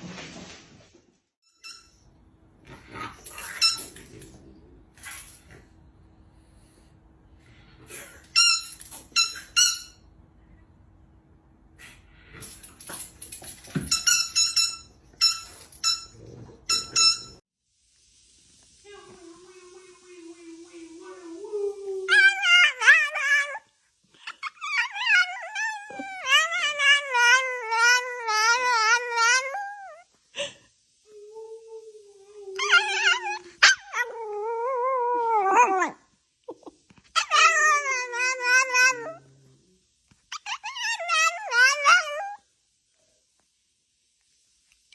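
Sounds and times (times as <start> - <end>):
squeaky dog toy squeaking: 8.4 - 10.0, 13.9 - 16.1.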